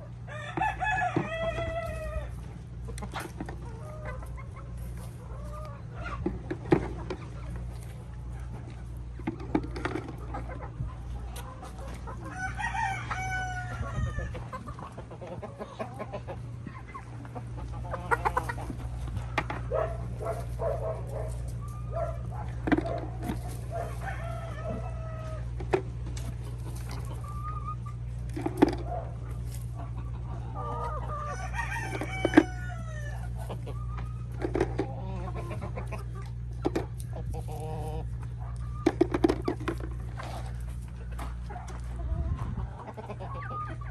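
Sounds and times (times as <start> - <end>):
chickens clucking: 0.0 - 43.9
steady low hum: 0.0 - 43.9
rooster crowing: 0.2 - 2.3, 12.2 - 14.4, 23.7 - 25.5, 30.6 - 33.4.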